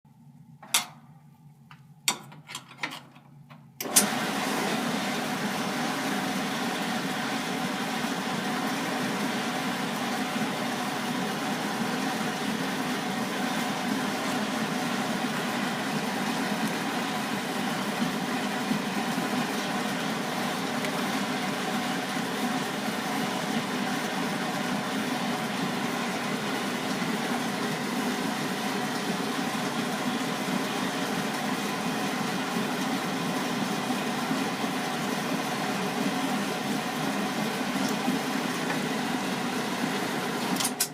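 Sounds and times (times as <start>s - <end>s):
washing machine clicks: 0.6s - 1.1s, 1.7s - 4.2s
washing machine running: 2.0s - 40.9s.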